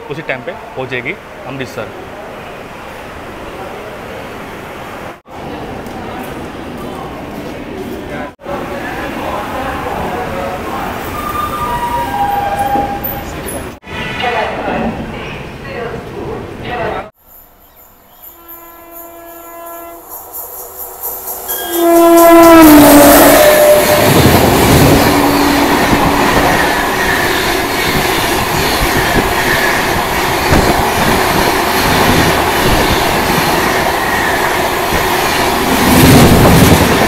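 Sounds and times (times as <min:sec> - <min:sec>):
train horn blast: 0:18.3 - 0:20.2, 0:21.5 - 0:26.4
train passing with rumble: 0:19.7 - 0:37.0.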